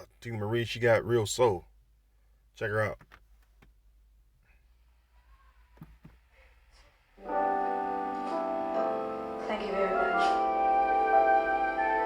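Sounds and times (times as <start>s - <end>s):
keyboard chord music: 7.2s - 12.0s.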